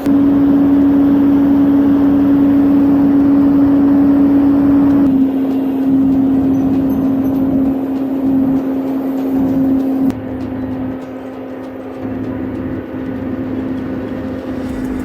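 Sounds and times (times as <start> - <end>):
forestry machinery running: 11.8 - 15.0
high hum: 13.2 - 15.0
loud rushing noise: 13.6 - 15.0.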